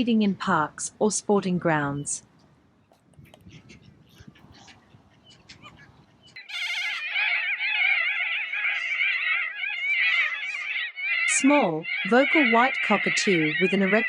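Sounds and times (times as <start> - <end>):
cockatoos calling harshly: 3.5 - 14.0.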